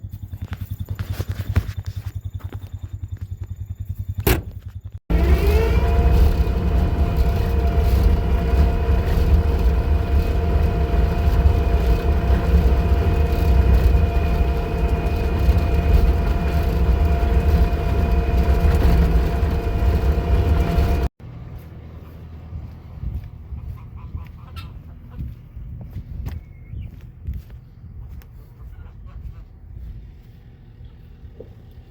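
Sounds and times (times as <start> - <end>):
engine starting and running: 0.1 - 22.7
steady whine: 4.2 - 21.2.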